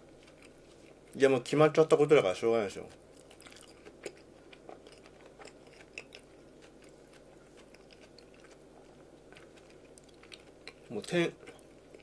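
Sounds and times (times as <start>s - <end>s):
person chewing food: 0.0s - 1.2s, 2.8s - 12.0s
low steady hum: 0.0s - 12.0s
crunching and mouth clicks: 0.1s - 1.2s, 2.9s - 12.0s.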